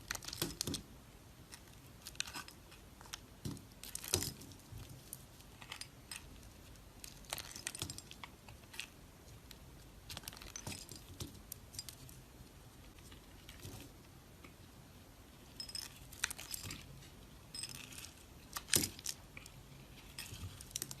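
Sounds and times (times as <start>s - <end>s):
dry soap crunching under knife: 1.5s - 4.2s, 17.6s - 21.0s.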